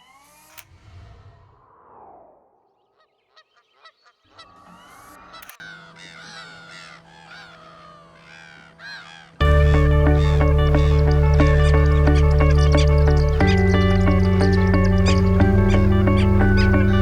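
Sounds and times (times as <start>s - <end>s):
flock of birds calling: 3.8s - 17.0s.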